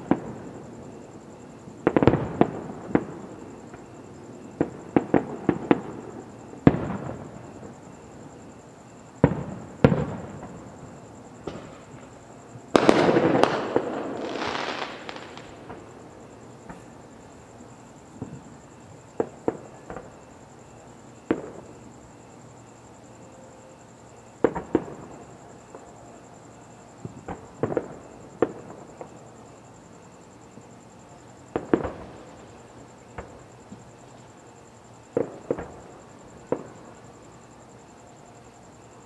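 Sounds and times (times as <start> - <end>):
fireworks booming: 0.0 - 8.5, 9.2 - 17.1, 17.8 - 20.3, 21.2 - 21.8, 24.4 - 25.8, 27.0 - 29.2, 31.4 - 33.9, 35.0 - 37.0.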